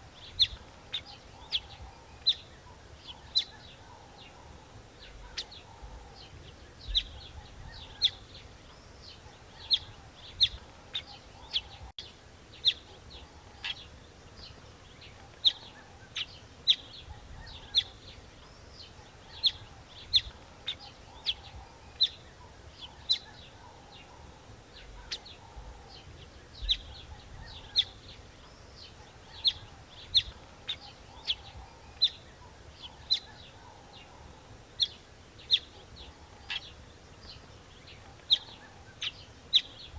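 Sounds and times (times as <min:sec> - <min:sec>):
small bird chirping: 0:00.0 - 0:39.9.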